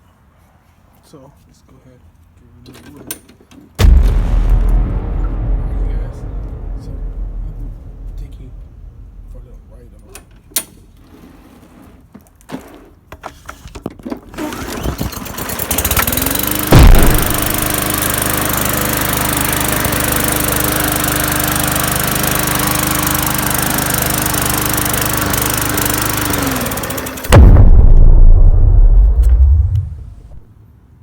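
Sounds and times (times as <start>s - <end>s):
loud low rumble: 3.8s - 11.0s, 16.7s - 17.8s, 27.3s - 30.5s
sharp knock: 3.8s - 11.0s, 16.7s - 18.0s, 27.3s - 30.5s
lawn mower running: 14.4s - 27.3s.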